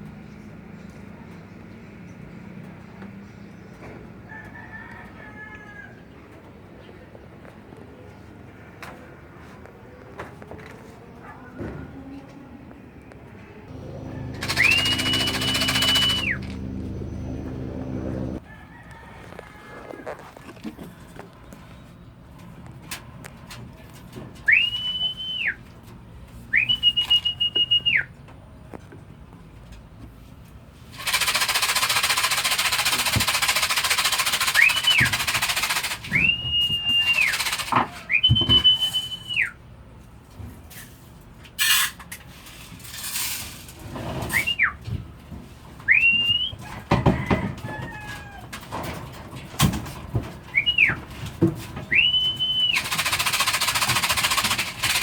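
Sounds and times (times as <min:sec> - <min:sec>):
scattered clicks: 0:13.8 - 0:16.8, 0:31.0 - 0:36.1, 0:52.4 - 0:55.0
whistled calls: 0:13.8 - 0:18.4, 0:24.5 - 0:25.6, 0:26.5 - 0:28.2, 0:34.3 - 0:39.6, 0:44.3 - 0:44.8, 0:45.9 - 0:46.7, 0:50.5 - 0:51.0, 0:51.9 - 0:54.2.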